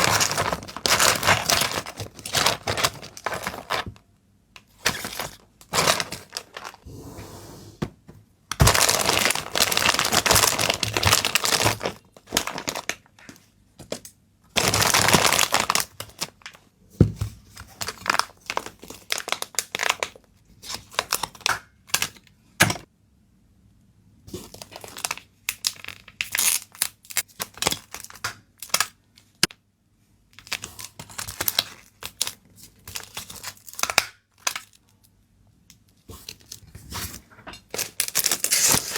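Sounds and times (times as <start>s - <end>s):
packaging tearing: 0.0s - 3.9s, 4.8s - 6.8s, 8.6s - 13.0s, 14.6s - 16.5s, 37.7s - 38.9s
wrapping crinkling and clicking: 0.0s - 6.8s, 8.5s - 16.6s, 17.6s - 22.2s, 24.4s - 29.4s, 30.4s - 35.1s, 37.6s - 38.9s.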